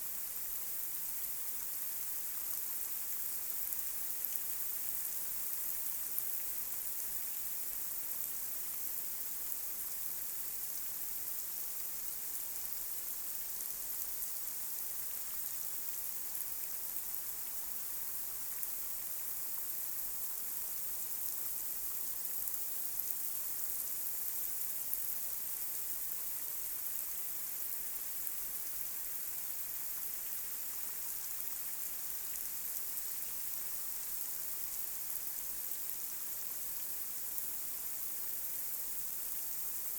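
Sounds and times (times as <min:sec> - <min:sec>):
light rain on a street: 0:00.0 - 0:39.9.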